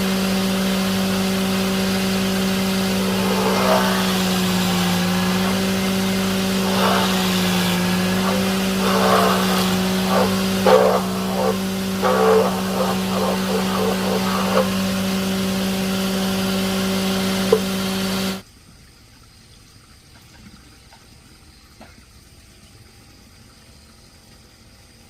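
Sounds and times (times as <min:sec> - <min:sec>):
machine humming: 0:00.0 - 0:18.4
short irregular sounds: 0:01.8 - 0:15.4.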